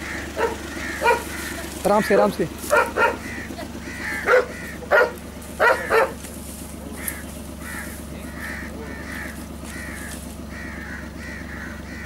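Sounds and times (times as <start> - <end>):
loud bark-like call: 0.0 - 1.8, 2.6 - 6.3
bird scratchy calls: 0.0 - 12.0.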